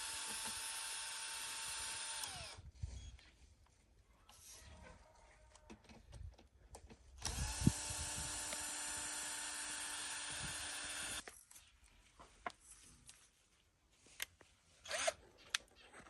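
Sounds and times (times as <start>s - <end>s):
small electric motor running: 0.0s - 2.6s, 7.2s - 11.2s.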